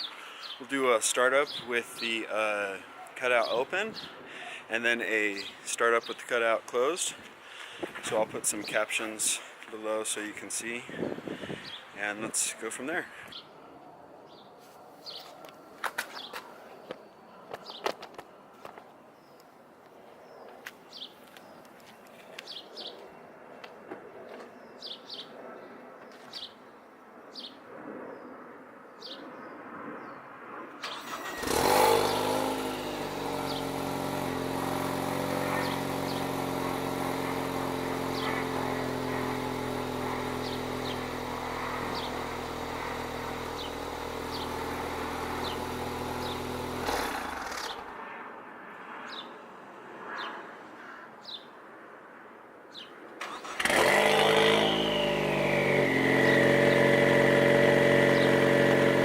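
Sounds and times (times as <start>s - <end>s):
birds chirping: 0.0s - 26.7s, 30.8s - 33.8s, 34.9s - 47.9s, 52.7s - 59.0s
car engine starting and idling: 30.8s - 33.0s, 53.2s - 55.8s.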